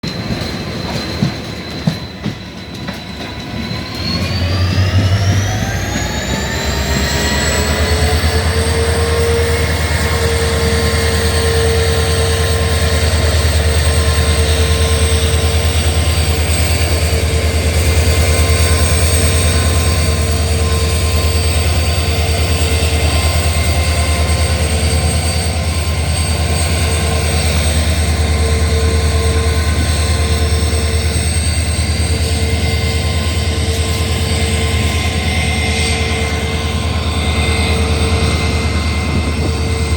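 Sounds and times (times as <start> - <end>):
diesel locomotive engine throbbing: 0.1 - 39.9.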